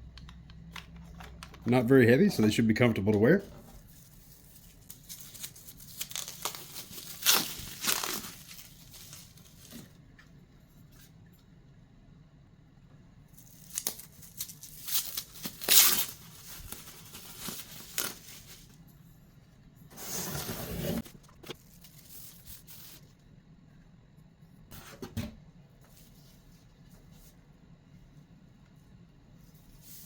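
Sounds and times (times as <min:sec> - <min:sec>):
packaging rustling and tearing: 0:03.8 - 0:09.8, 0:13.4 - 0:18.8, 0:21.0 - 0:23.0.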